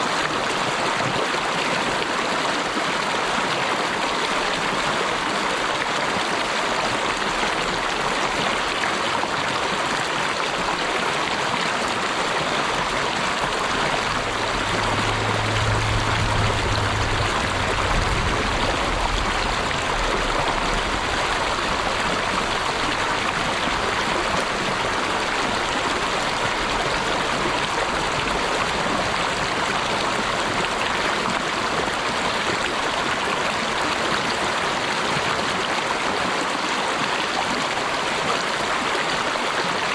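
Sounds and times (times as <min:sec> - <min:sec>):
stream flowing: 0:00.0 - 0:39.9
faint low hum: 0:13.4 - 0:29.6.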